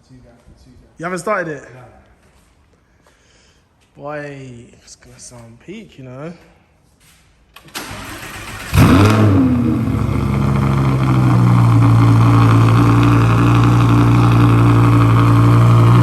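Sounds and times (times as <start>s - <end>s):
car engine starting and idling: 7.6s - 16.0s.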